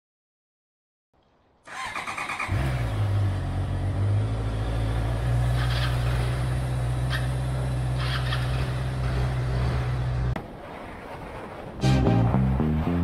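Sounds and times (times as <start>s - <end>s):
car engine idling: 3.4s - 10.4s.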